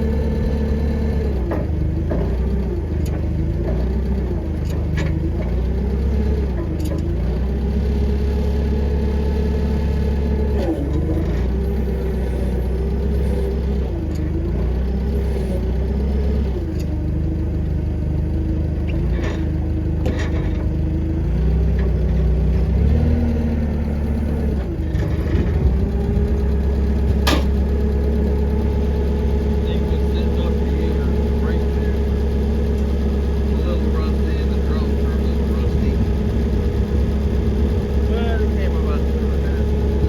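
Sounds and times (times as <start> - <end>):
engine running: 0.0 - 40.0
sharp metallic knocks: 27.2 - 27.6.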